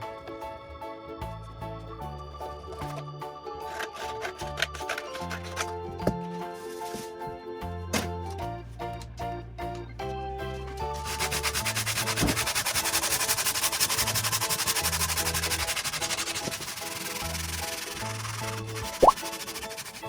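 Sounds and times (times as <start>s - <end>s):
sanding wood: 10.9s - 20.0s.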